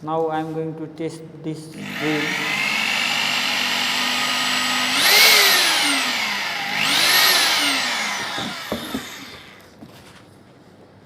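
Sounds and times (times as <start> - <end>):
drill clicks: 1.8 - 9.8
rotary hammer drill motor running: 1.8 - 9.8.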